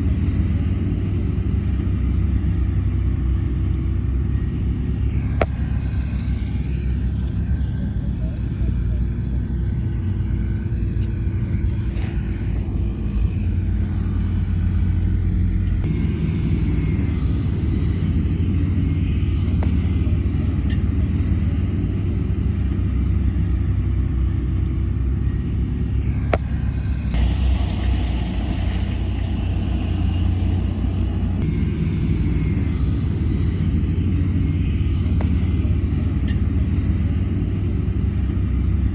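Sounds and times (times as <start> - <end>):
diesel machinery rumbling: 0.0 - 38.9.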